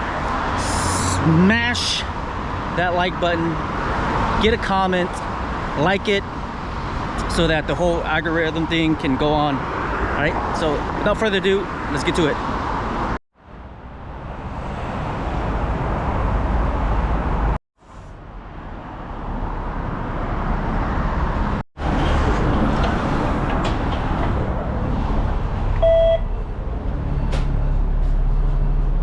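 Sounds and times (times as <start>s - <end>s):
traffic rumble: 0.0s - 29.0s
short electronic beep: 25.8s - 26.3s.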